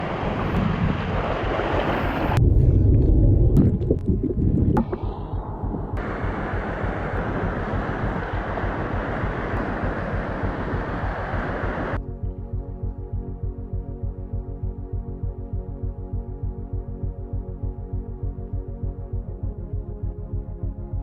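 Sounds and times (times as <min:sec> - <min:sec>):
low rumble on microphone: 0:00.0 - 0:20.2
waterfall rushing: 0:06.0 - 0:12.0.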